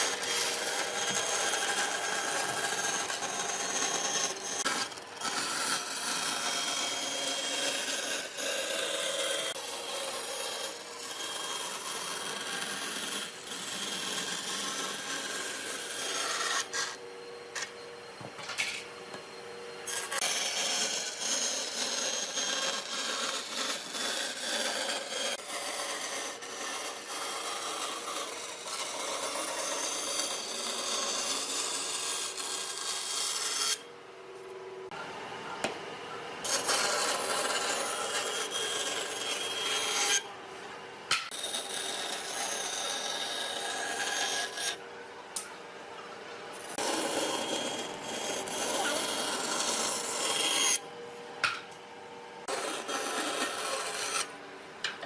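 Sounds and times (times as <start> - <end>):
rasp scraping wood: 46.7 - 50.8.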